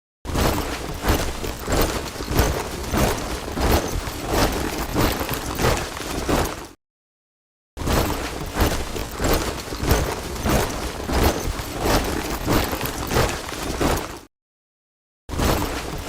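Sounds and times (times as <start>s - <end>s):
soldiers marching in step: 0.4s - 6.8s, 8.2s - 14.3s.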